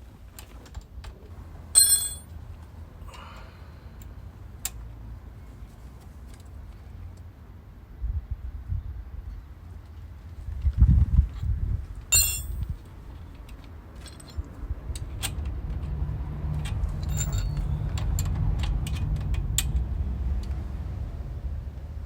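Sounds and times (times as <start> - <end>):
sharp metallic clink: 1.8 - 2.3, 12.1 - 12.6, 17.0 - 17.7
low steady rumble: 16.1 - 22.0.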